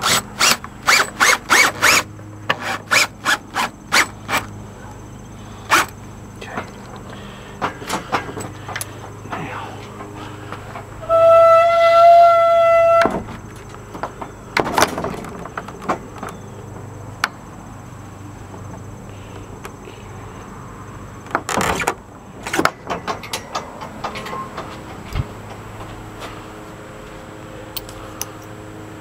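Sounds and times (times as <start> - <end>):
power drill whining: 0.0 - 4.5.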